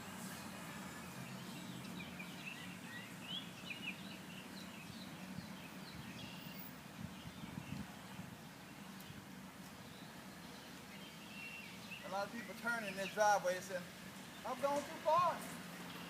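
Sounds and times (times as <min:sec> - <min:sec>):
small birds chirping: 0:00.1 - 0:16.0.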